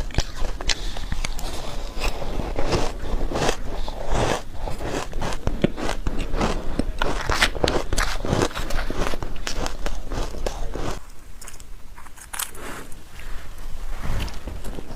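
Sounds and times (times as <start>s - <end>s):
chewing crunchy ice: 0.0s - 11.0s.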